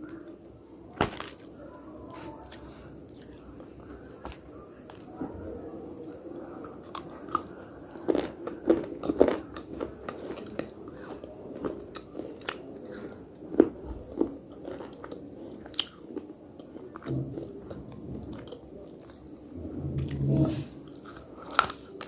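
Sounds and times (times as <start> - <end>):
person chewing crunchy food: 6.8 - 19.4, 20.0 - 22.0.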